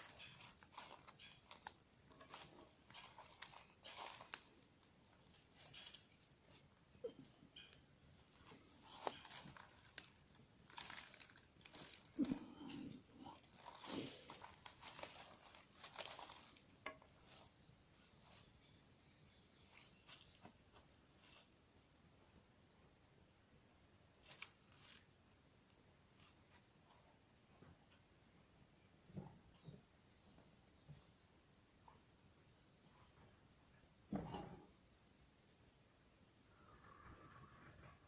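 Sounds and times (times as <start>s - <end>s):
wood fire crackling: 0.0s - 17.4s.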